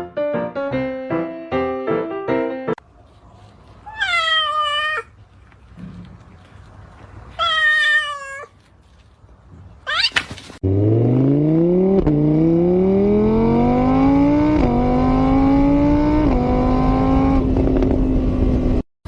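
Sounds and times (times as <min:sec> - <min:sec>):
cat meowing: 0:03.8 - 0:05.2, 0:07.3 - 0:08.7, 0:09.8 - 0:10.5
car engine accelerating: 0:10.6 - 0:18.8.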